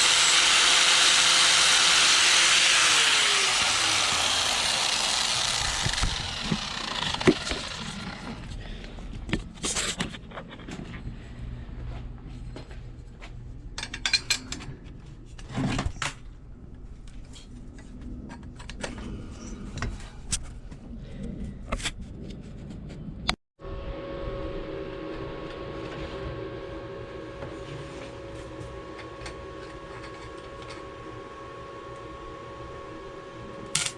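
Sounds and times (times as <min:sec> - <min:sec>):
steady hum: 0:00.0 - 0:10.2.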